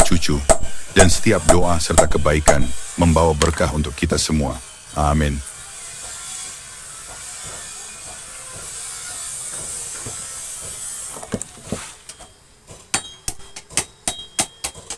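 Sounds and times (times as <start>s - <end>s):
sharp metal knocks: 0.0s - 3.8s, 12.9s - 14.9s
steady high hiss: 0.0s - 5.7s, 8.8s - 14.9s.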